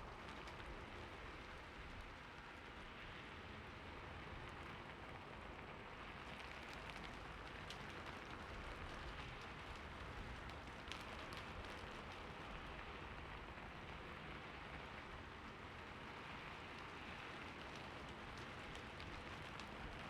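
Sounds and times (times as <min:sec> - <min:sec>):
raindrops ticking: 0:17.4 - 0:20.0.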